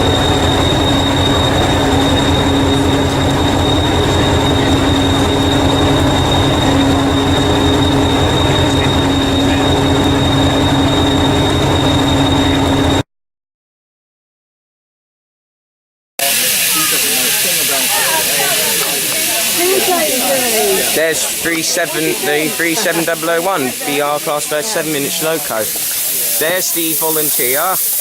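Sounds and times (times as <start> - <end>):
high-pitched whine: 0.0 - 13.0, 16.2 - 28.0
train pulsing drone: 0.0 - 13.0, 16.2 - 28.0.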